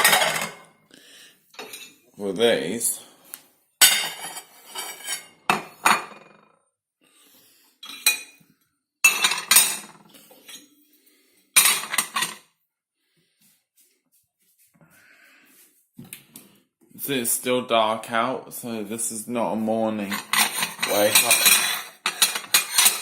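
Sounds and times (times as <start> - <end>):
dishes clattering and clinking: 0.0 - 0.8, 1.6 - 2.0, 3.8 - 6.5, 7.8 - 8.4, 9.0 - 10.7, 11.6 - 12.5, 20.0 - 23.0.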